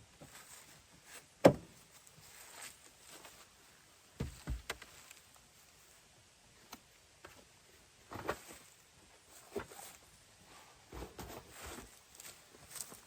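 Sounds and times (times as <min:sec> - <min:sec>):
soft knocks and rustles: 0:04.2 - 0:05.2, 0:10.9 - 0:13.0.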